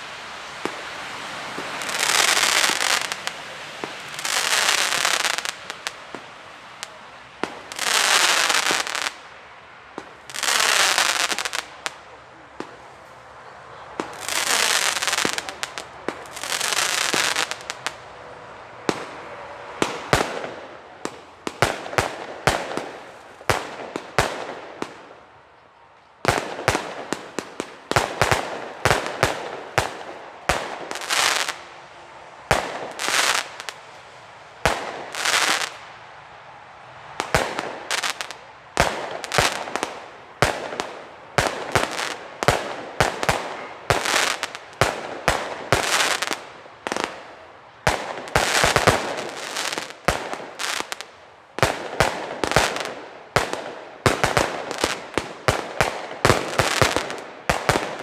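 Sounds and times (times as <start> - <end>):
fireworks launches and bangs: 0.0 - 9.3, 37.2 - 58.0
fireworks hissing and crackling: 0.0 - 58.0.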